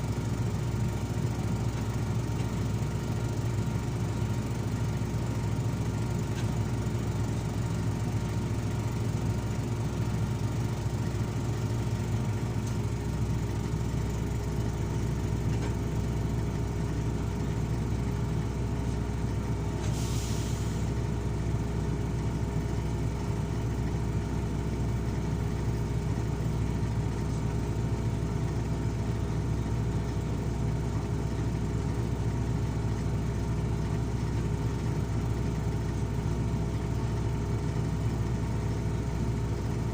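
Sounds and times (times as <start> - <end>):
heavy diesel engine running: 0.0 - 39.9
burst of hiss: 19.8 - 20.8.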